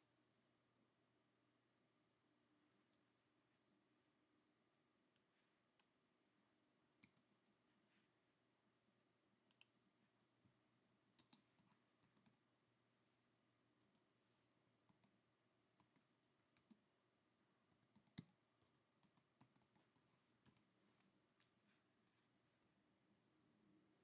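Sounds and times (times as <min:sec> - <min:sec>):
computer mouse and keyboard clicking: 0:11.2 - 0:12.4, 0:17.8 - 0:20.7.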